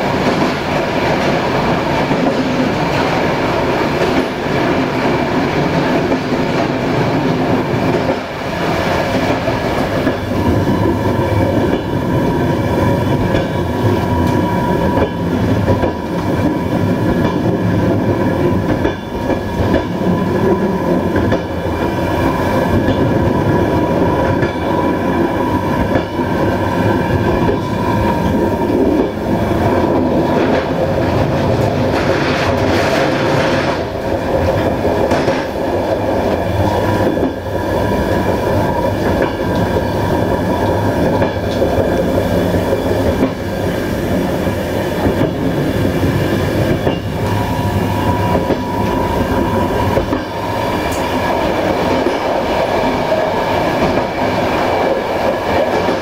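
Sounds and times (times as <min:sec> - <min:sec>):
train wheels rumbling on rails: 0:00.0 - 0:56.0
train wheels clacking over rail joints: 0:12.9 - 0:22.0, 0:27.2 - 0:37.4, 0:45.0 - 0:56.0.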